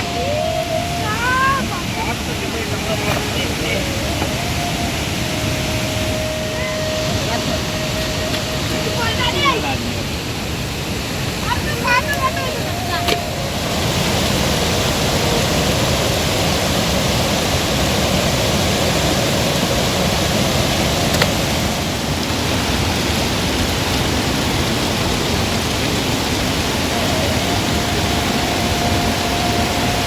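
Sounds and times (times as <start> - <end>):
faint steady tone: 0.0 - 22.0, 26.8 - 30.0
loud rushing noise: 0.0 - 30.0.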